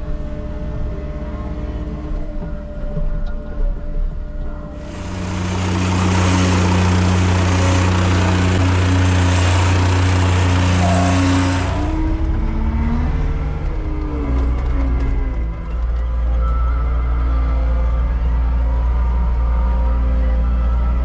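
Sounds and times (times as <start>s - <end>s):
heavy diesel machine engine running: 4.8s - 16.5s.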